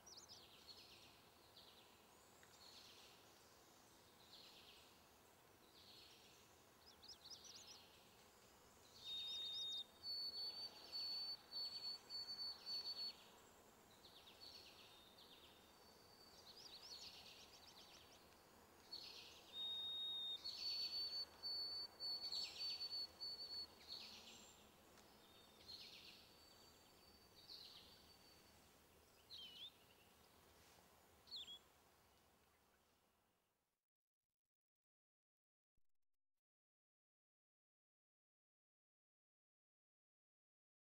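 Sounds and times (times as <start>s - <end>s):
faint birdsong chirps and trills: 0.0s - 33.2s
high whistled bird notes: 19.6s - 23.7s.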